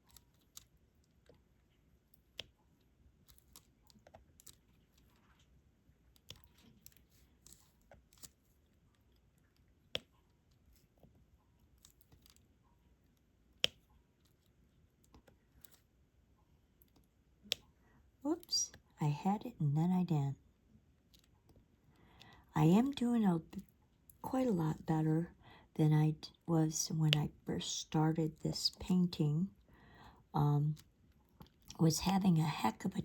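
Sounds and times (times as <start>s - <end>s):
small plastic clicks and taps: 13.5s - 14.0s.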